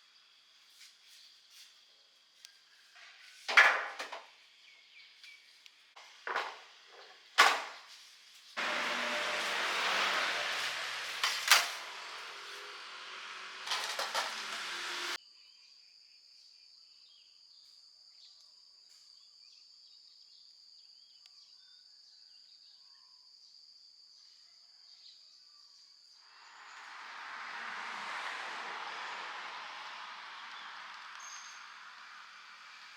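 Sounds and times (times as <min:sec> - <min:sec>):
clatters: 0:13.6 - 0:15.2
steady rushing noise: 0:26.3 - 0:32.9.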